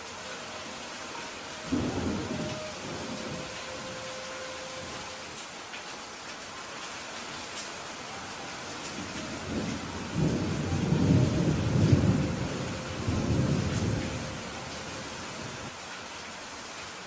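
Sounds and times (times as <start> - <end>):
steady rain falling: 0.0 - 17.0
rolling thunder rumble: 1.7 - 4.0, 8.9 - 15.7.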